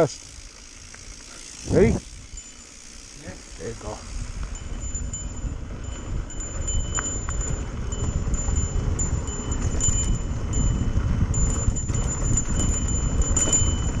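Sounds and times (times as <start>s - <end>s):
small bike bell jingling: 0.0s - 14.0s
wind rushing on microphone: 1.6s - 2.4s, 3.6s - 14.0s.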